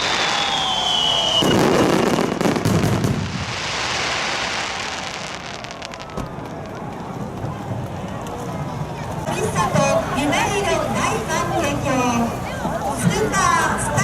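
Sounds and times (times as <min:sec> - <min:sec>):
whistling firework shell: 0:00.0 - 0:06.7
firework shells booming: 0:00.0 - 0:07.5
firework crackling: 0:00.0 - 0:08.2.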